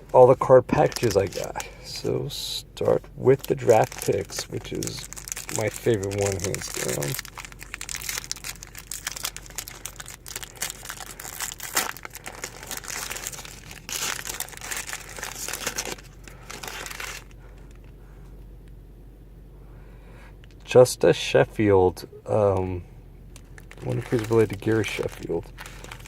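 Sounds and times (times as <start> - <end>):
wrapper tearing and crinkling: 0.7 - 1.7, 3.3 - 17.8, 23.4 - 26.0.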